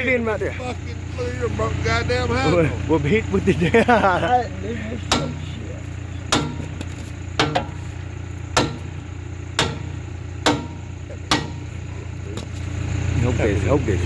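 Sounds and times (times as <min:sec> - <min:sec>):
steady low hum: 0:00.0 - 0:14.0
hammer striking metal: 0:05.0 - 0:05.6, 0:06.3 - 0:11.9.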